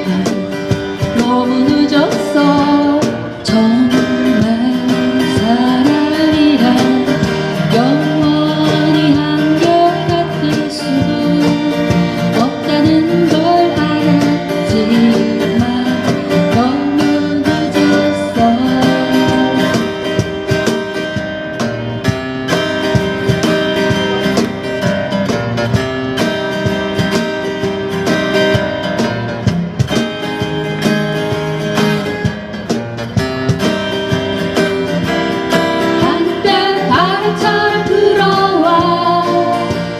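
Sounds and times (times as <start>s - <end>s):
person singing: 0.0s - 20.1s, 35.9s - 39.9s
acoustic guitar strumming: 0.0s - 39.9s.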